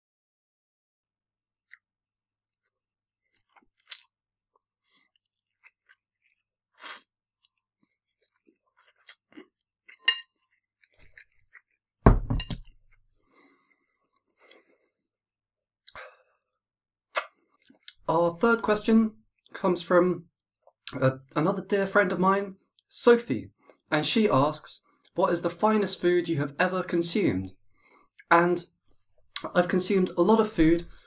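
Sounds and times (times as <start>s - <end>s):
person chewing noodles: 2.5s - 11.9s, 17.2s - 18.0s
thump: 12.1s - 12.5s
soft mouth smacks: 17.1s - 18.0s.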